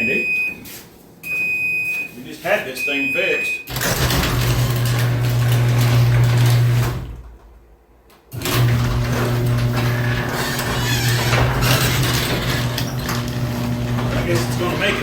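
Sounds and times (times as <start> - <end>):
garage door motor humming: 3.7 - 15.0.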